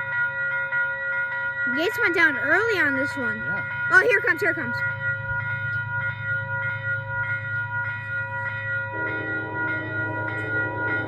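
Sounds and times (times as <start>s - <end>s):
crossing bell ringing: 0.0s - 11.0s
train horn chord: 8.9s - 11.0s.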